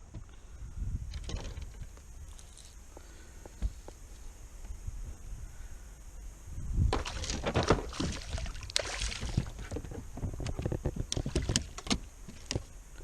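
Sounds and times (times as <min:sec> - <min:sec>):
water splashing: 0:07.0 - 0:09.7.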